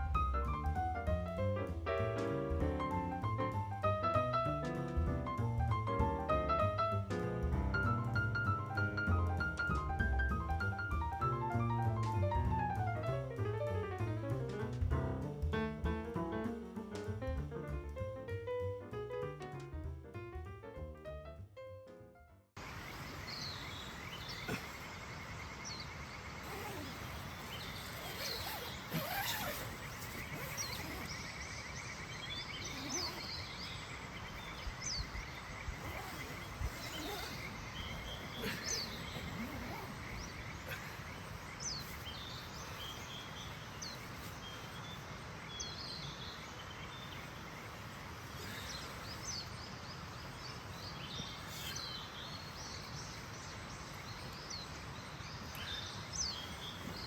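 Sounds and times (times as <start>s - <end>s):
steady background hiss: 22.6s - 57.0s
bird chirps and calls: 22.9s - 57.0s.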